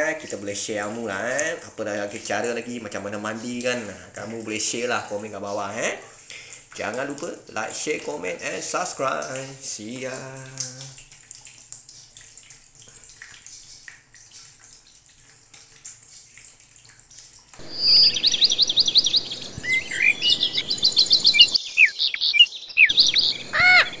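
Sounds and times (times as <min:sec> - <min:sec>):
water trickling into plastic basin: 0:00.0 - 0:21.6
high-pitched bird chirps and trills: 0:17.6 - 0:24.0.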